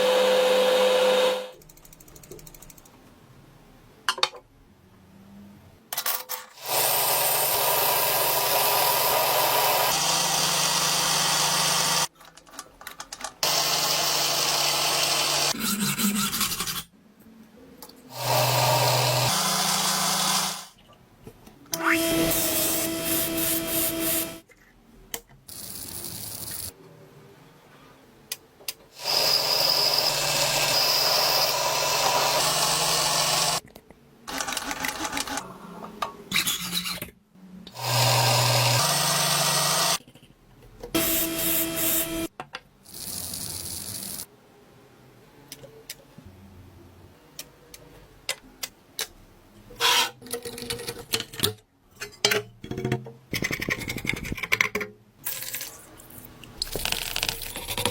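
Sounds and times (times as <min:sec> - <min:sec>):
power tool running: 0:00.0 - 0:01.6, 0:06.6 - 0:12.1, 0:13.4 - 0:15.6, 0:18.1 - 0:20.7, 0:21.8 - 0:24.4, 0:29.0 - 0:33.6, 0:37.8 - 0:40.0, 0:41.0 - 0:42.3.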